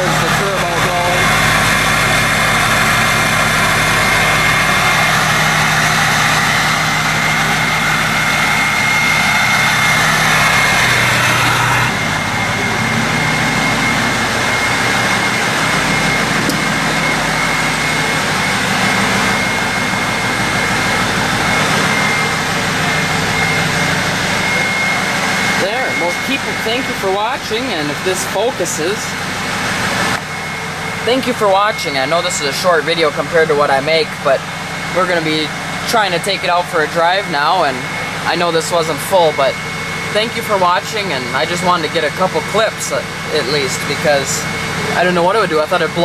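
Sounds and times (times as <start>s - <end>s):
turbo whistle: 0.0s - 27.9s
diesel engine idling: 0.0s - 46.0s.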